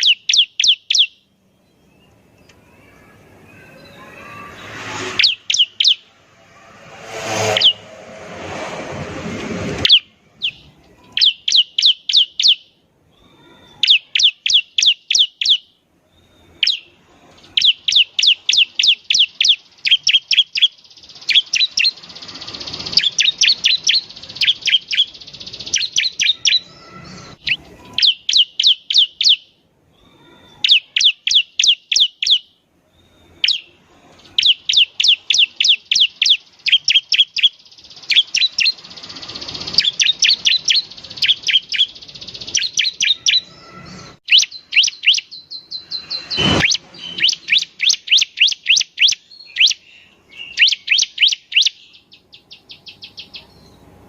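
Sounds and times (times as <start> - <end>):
bird singing high notes: 0.0 - 8.0, 34.4 - 52.0.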